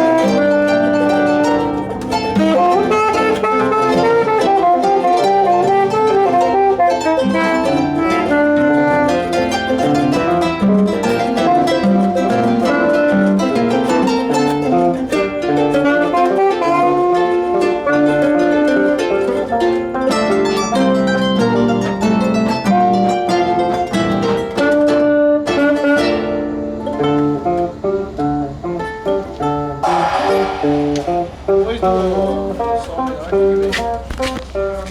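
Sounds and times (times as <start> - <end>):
plucked string music: 0.0 - 34.9.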